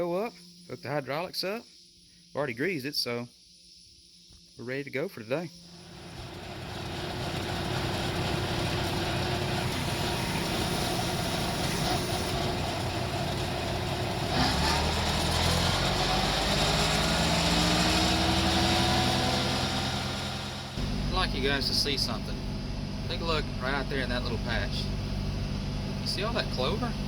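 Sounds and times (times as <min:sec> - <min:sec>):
tractor engine running: 0:05.8 - 0:27.0
rising tone: 0:05.9 - 0:22.5.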